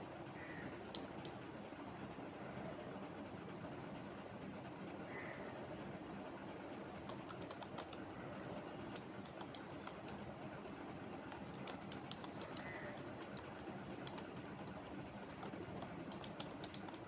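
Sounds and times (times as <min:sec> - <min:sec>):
low background noise: 0:00.0 - 0:17.0
computer keyboard typing: 0:07.0 - 0:10.4, 0:11.2 - 0:17.0.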